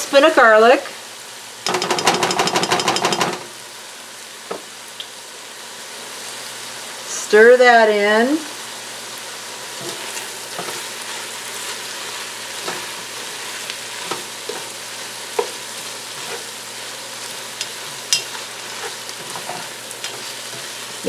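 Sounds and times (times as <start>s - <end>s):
food sizzling in a pot: 0.0s - 21.0s
spatula scraping and tapping pot: 15.4s - 16.5s, 17.6s - 20.8s.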